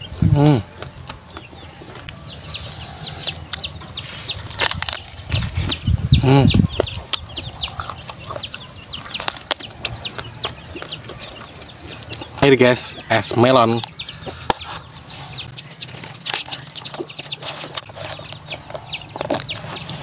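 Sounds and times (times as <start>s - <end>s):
wet crunching of eggplant: 4.5s - 5.8s, 6.6s - 12.4s.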